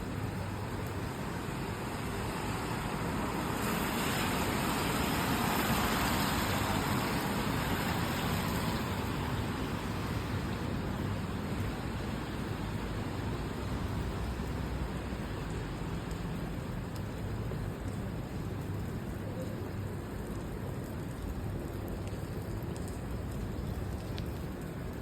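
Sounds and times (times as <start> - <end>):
rain hiss: 0.0 - 25.0
car tyres hissing on wet road: 1.1 - 16.6.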